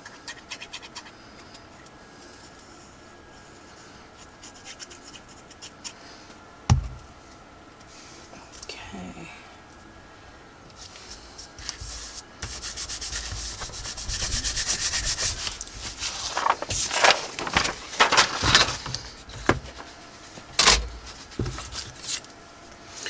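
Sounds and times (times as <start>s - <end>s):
paper rubbed by hand: 10.8s - 18.5s.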